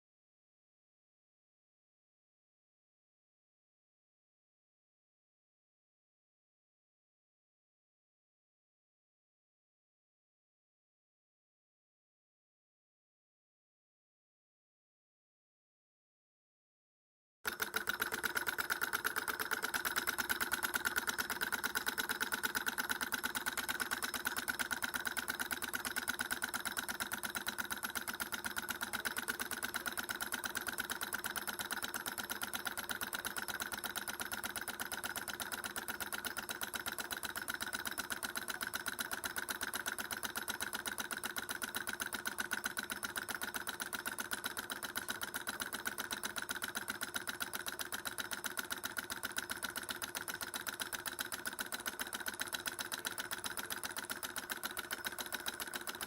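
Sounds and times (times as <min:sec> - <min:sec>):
small engine clattering: 0:17.5 - 0:56.0.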